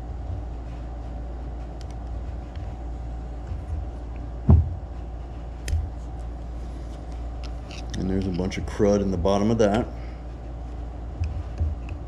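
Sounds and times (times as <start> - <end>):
low hum: 0.0 - 12.0
heavy low thump: 3.5 - 4.9.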